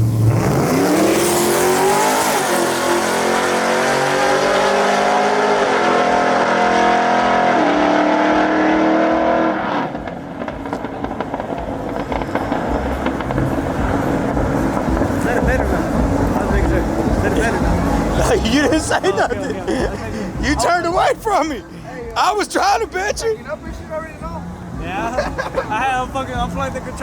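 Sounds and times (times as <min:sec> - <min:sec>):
truck engine accelerating hard: 0:00.0 - 0:21.6.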